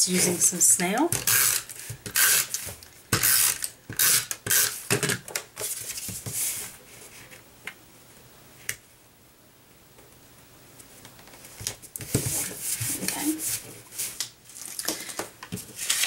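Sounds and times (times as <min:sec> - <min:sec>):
paper handling: 0:12.0 - 0:16.0.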